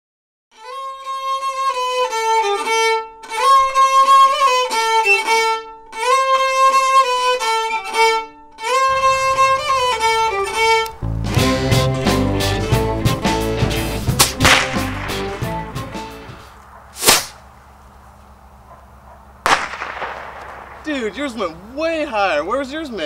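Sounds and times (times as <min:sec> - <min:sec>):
solo violin melody: 0:00.5 - 0:13.6.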